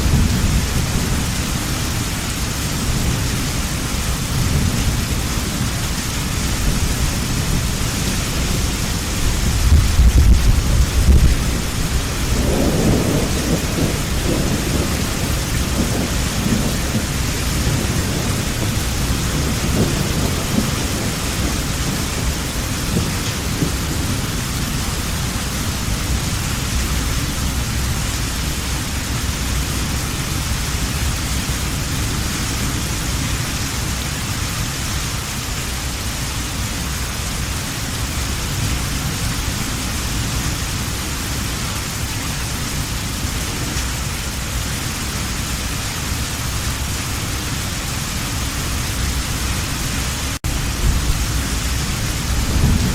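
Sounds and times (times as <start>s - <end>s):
distant thunder rumble: 0.0s - 2.1s, 2.7s - 26.2s, 49.0s - 52.9s
heavy rain falling: 0.0s - 52.9s.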